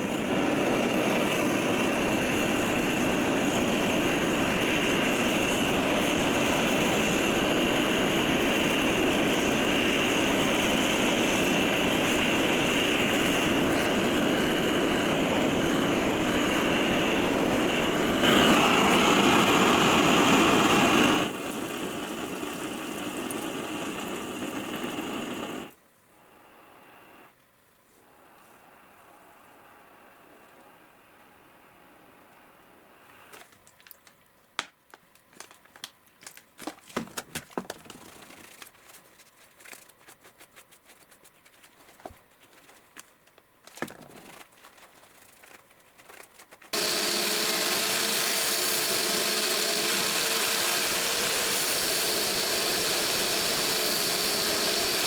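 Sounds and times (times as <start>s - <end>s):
power tool whirring on steel: 0.0s - 25.7s, 46.7s - 55.0s.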